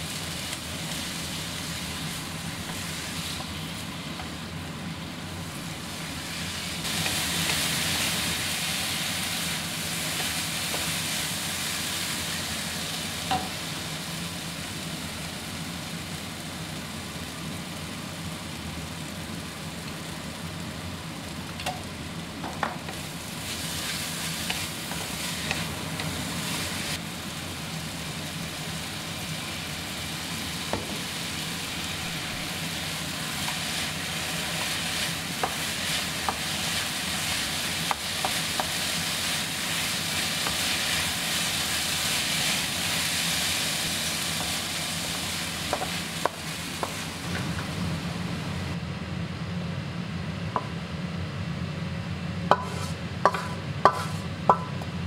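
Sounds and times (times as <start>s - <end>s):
oil sizzling in a wok: 0.0s - 48.9s, 52.4s - 55.0s
sharp knocks on wok: 52.5s - 54.8s
wooden spatula scraping wok: 52.6s - 54.3s.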